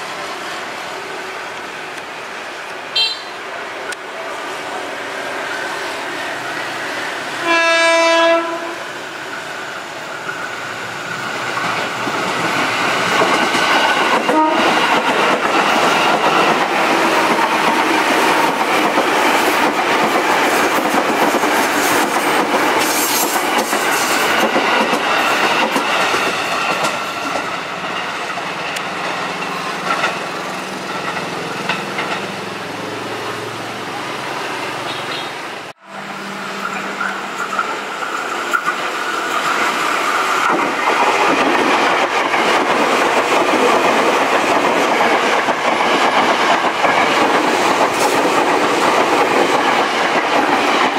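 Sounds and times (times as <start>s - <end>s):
train wheel and rail noise: 0.0s - 50.9s
train horn blast: 2.9s - 3.4s, 7.4s - 8.9s, 14.3s - 14.8s.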